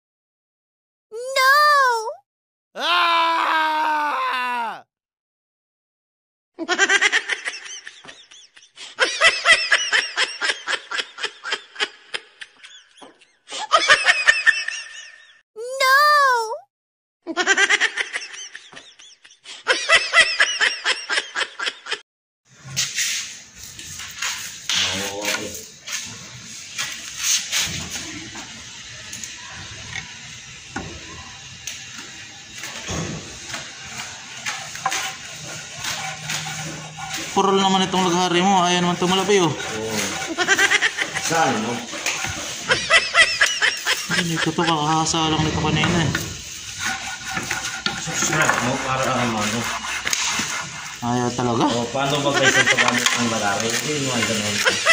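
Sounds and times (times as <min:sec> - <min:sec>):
rapid pitched laughing: 0:17.3 - 0:22.0, 0:39.1 - 0:44.8, 0:52.0 - 0:53.2
hand saw rasping through wood: 0:32.6 - 0:54.9.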